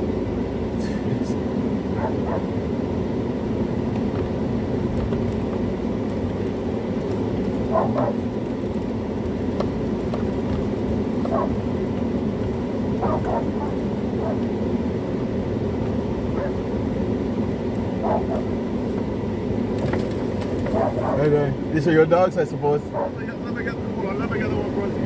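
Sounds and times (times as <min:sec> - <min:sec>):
dog barking: 0:01.9 - 0:02.6, 0:07.7 - 0:08.2, 0:11.3 - 0:11.6, 0:13.0 - 0:14.5, 0:16.3 - 0:16.6, 0:18.0 - 0:18.5, 0:20.7 - 0:21.3, 0:22.9 - 0:23.2.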